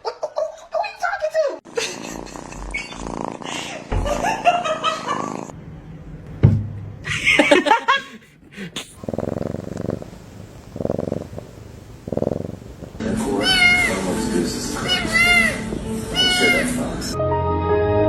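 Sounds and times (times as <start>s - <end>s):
cat purring: 1.9s - 3.9s, 5.0s - 5.6s, 8.8s - 14.0s.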